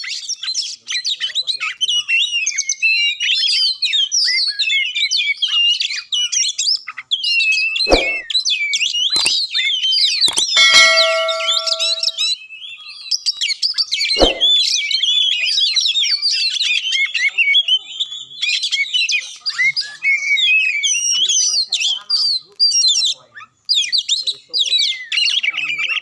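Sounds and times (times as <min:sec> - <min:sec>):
short thumps: 0:07.9 - 0:08.2, 0:14.2 - 0:14.5.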